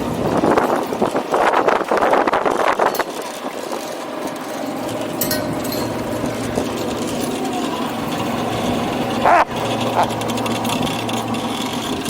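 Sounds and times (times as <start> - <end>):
small engine buzzing: 0.0 - 12.0.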